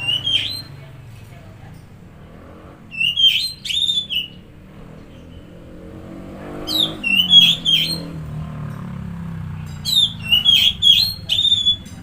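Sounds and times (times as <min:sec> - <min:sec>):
bird singing whistled phrases: 0:00.0 - 0:00.8, 0:02.9 - 0:04.4, 0:06.6 - 0:08.3, 0:09.8 - 0:12.0.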